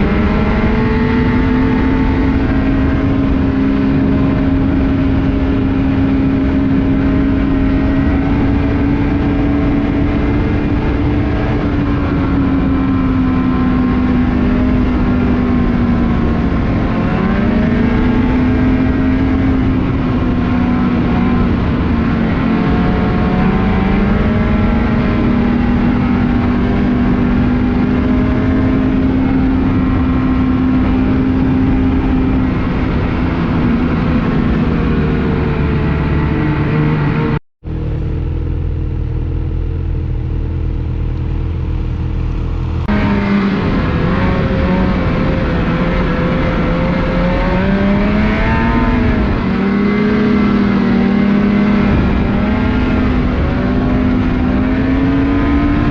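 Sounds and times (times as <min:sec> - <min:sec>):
snowmobile engine running: 0:00.0 - 0:55.9
steady rushing noise: 0:00.0 - 0:55.9.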